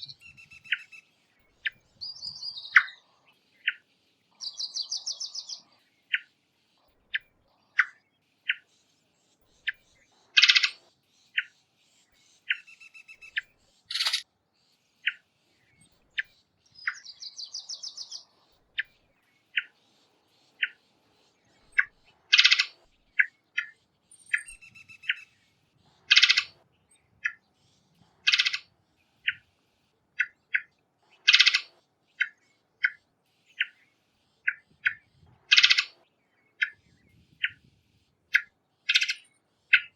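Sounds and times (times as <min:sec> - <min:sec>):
rapid bird trills: 0:00.0 - 0:39.9
harsh bird calls: 0:12.2 - 0:14.2, 0:30.2 - 0:37.6.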